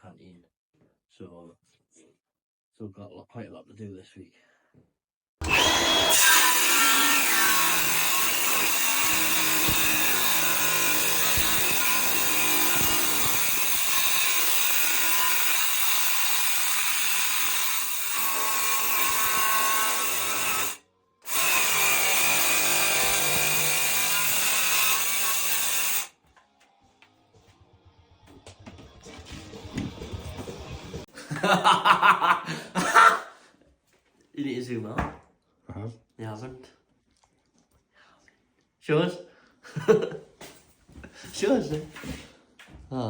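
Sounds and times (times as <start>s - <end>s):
power tool cutting wood: 5.4s - 26.2s.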